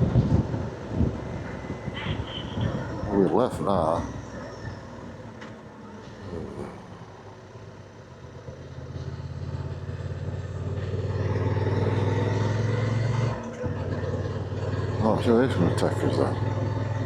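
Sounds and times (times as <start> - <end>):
motorcycle engine revving: 8.6 - 17.0.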